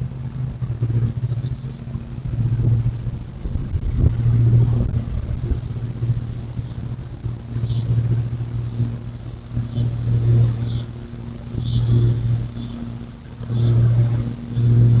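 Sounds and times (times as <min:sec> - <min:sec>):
vehicle engine rumble: 0:00.0 - 0:15.0
high bird chirps: 0:07.6 - 0:07.9.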